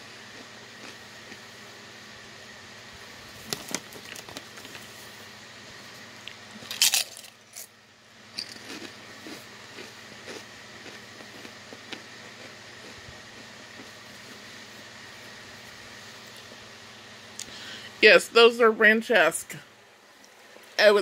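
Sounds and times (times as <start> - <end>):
person chewing crisps: 0.2 - 1.6, 3.4 - 5.0, 6.2 - 7.7, 8.4 - 14.4.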